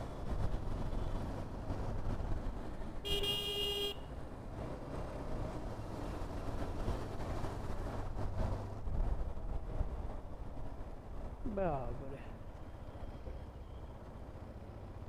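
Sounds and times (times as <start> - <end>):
vehicle horn honking: 3.0 - 4.1.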